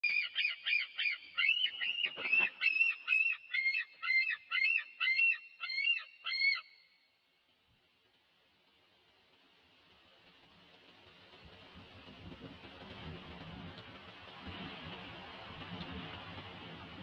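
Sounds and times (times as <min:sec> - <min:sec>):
bird harsh calls: 0:00.0 - 0:06.9.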